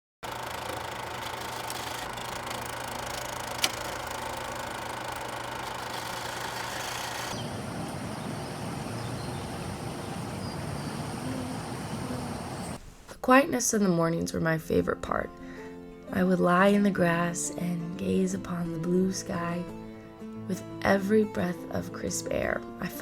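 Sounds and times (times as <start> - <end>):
low engine-like hum: 7.3 - 12.8.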